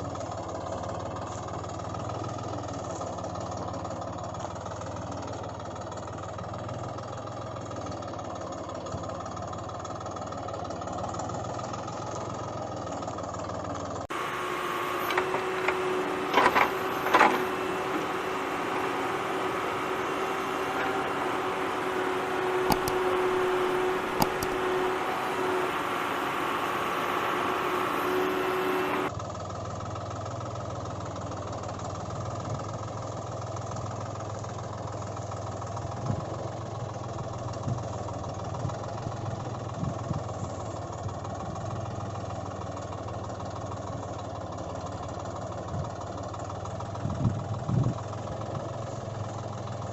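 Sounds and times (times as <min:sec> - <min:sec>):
engine running: 0:00.0 - 0:49.9
sharp clicks: 0:22.7 - 0:23.1, 0:24.1 - 0:24.6.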